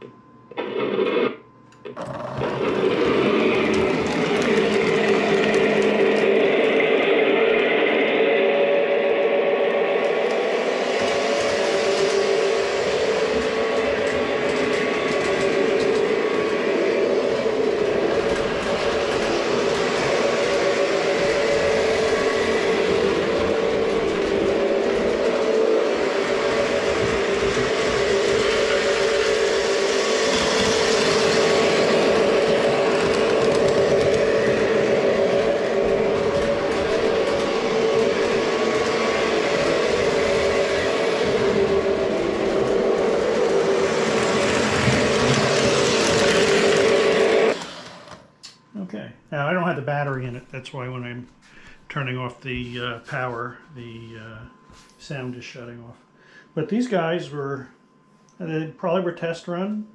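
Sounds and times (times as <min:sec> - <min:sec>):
model train running on track: 0:02.0 - 0:48.1.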